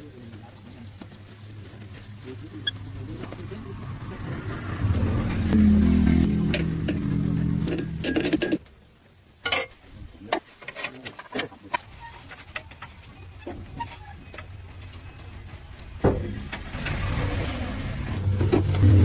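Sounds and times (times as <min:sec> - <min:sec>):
engine running: 0:00.6 - 0:08.6, 0:12.7 - 0:19.0.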